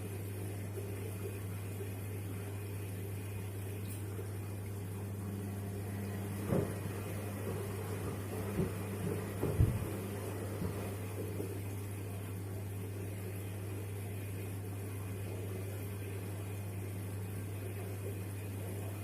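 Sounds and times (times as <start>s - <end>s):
washing machine humming: 0.0s - 19.0s
shoes thumping in drum: 7.4s - 10.9s.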